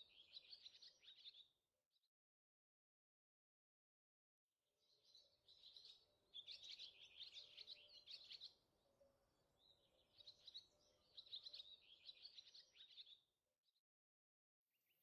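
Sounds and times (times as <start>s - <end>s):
faint bird chirping and twittering: 0.0s - 1.6s, 4.8s - 13.8s.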